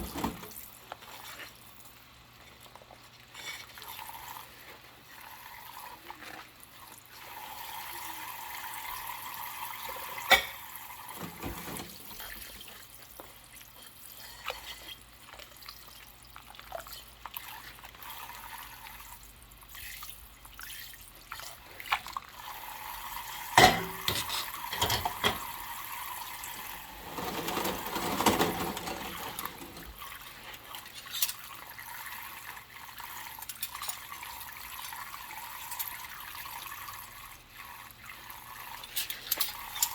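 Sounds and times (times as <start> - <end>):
tap water running: 0.0 - 1.8, 3.4 - 39.9
dishes clinking: 10.2 - 10.6, 11.2 - 12.0, 23.5 - 25.5, 27.0 - 29.9
sharp knocks of dishware: 23.6 - 25.4.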